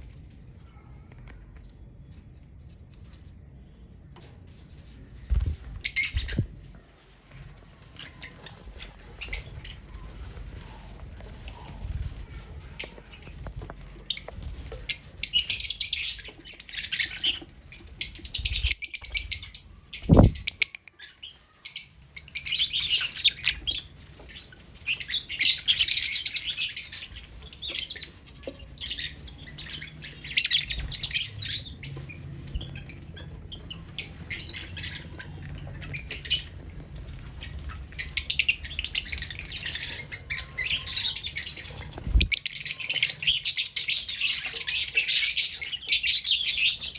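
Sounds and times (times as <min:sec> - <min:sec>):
lovebirds chirping and chattering: 0:04.8 - 0:46.9
brief thump: 0:20.1 - 0:20.5.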